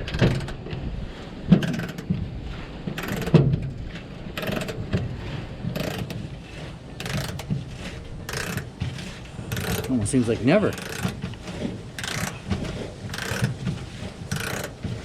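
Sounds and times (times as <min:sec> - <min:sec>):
ratchet wrench clicking: 0:08.3 - 0:08.6, 0:10.8 - 0:11.1, 0:12.0 - 0:12.3, 0:13.1 - 0:13.5, 0:14.3 - 0:14.7.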